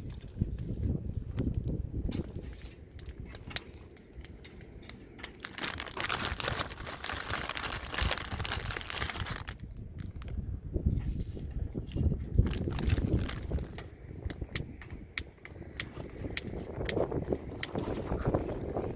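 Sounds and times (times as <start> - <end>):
packaging crinkling and rustling: 3.3 - 10.5, 12.3 - 13.9.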